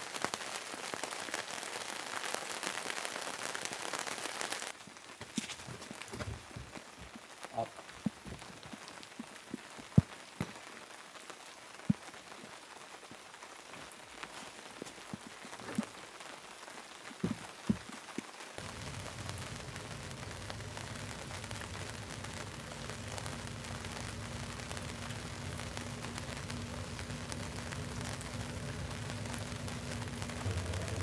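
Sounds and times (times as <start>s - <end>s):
steady rain falling: 0.0s - 31.0s
heavy raindrops striking close: 17.2s - 31.0s
low hum: 18.6s - 31.0s.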